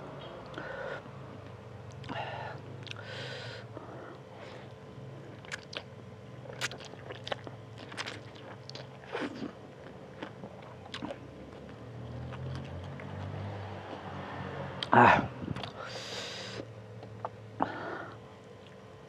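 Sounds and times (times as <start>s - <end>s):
noodles chewing: 6.5s - 13.4s.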